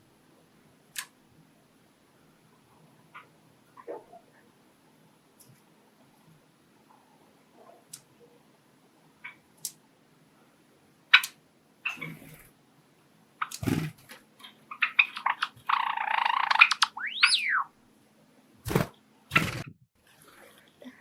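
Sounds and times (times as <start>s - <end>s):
sparrow singing: 14.7s - 17.7s.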